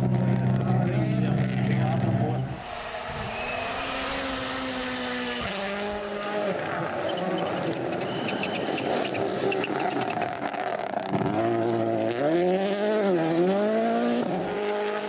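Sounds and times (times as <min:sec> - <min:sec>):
rally car engine at full throttle: 0:00.0 - 0:15.0
rough car noise with crackles: 0:02.6 - 0:11.9.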